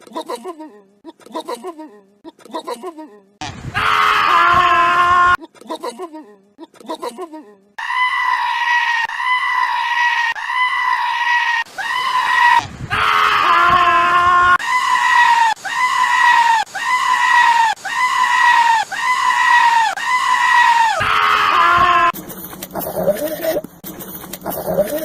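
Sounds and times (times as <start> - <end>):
goat screaming: 7.8 - 22.2, 22.8 - 23.6, 24.4 - 25.0
lower animal bleats: 22.8 - 23.6.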